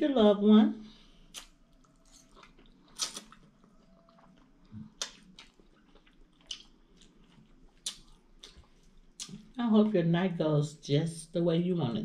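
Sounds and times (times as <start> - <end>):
person chewing food: 1.1 - 9.6.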